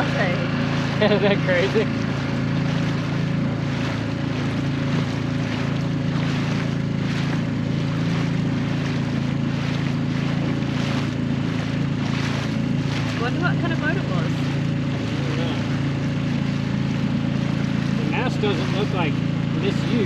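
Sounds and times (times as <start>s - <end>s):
outboard motor running: 0.0s - 20.0s
water rushing past hull: 0.0s - 20.0s.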